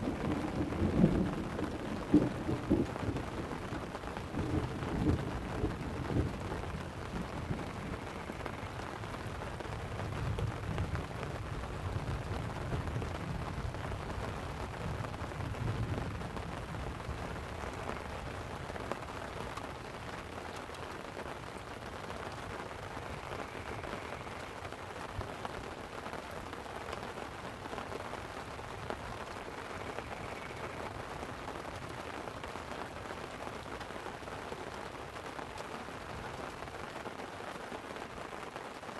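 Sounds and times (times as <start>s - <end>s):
rolling thunder: 0.0s - 8.3s
light rain on a tent: 0.0s - 38.9s.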